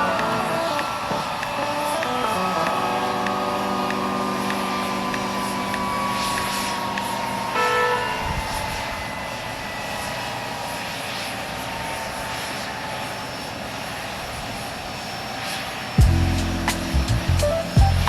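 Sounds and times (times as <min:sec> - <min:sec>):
jet engines whining: 0:00.0 - 0:18.0
music with heavy beat: 0:16.0 - 0:18.0.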